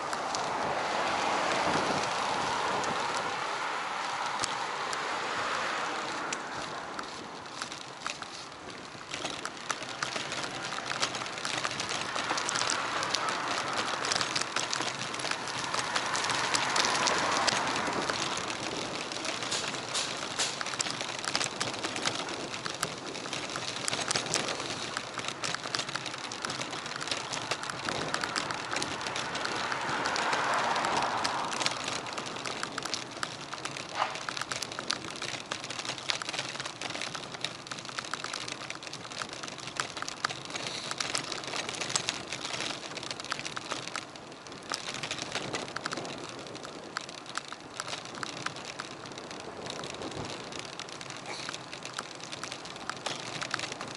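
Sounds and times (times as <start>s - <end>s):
wind rushing on microphone: 0.0s - 35.6s
bike clicks and rattles: 0.0s - 53.9s.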